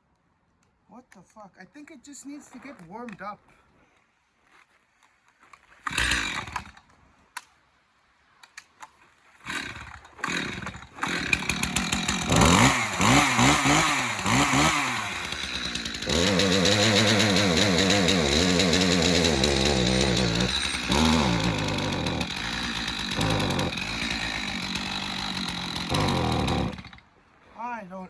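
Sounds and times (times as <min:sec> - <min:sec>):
chainsaw engine starting and running: 0:05.8 - 0:06.8, 0:09.4 - 0:27.0.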